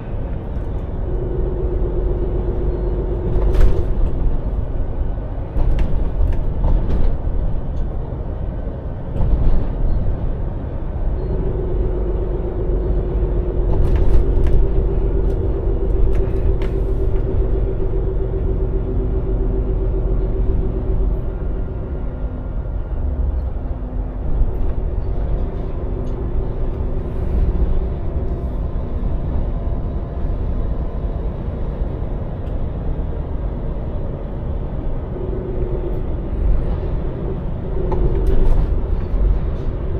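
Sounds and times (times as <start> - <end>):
lorry engine and road rumble: 0.0 - 39.9.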